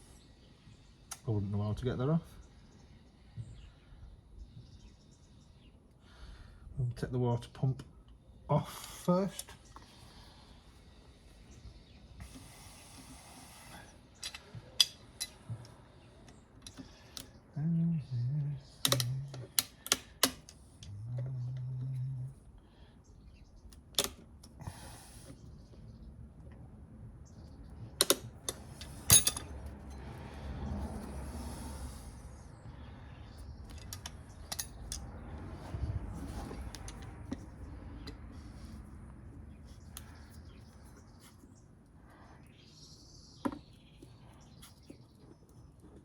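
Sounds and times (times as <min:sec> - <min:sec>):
tools clicking and clinking: 0:14.2 - 0:15.4, 0:18.8 - 0:20.9, 0:23.9 - 0:24.2, 0:28.0 - 0:30.0, 0:33.6 - 0:35.2, 0:36.3 - 0:38.2.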